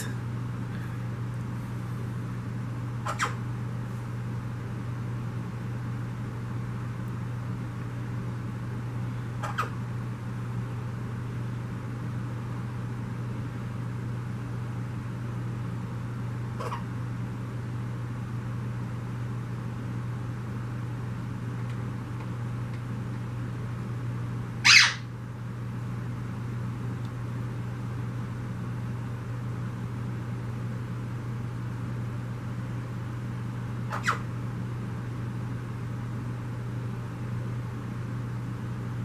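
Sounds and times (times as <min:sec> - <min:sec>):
bird harsh call: 0:24.6 - 0:25.1, 0:33.9 - 0:34.3.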